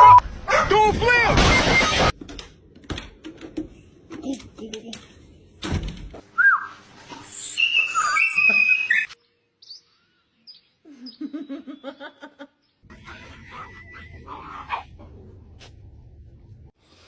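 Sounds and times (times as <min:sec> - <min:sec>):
bird chirping and whistling: 0:06.4 - 0:09.9.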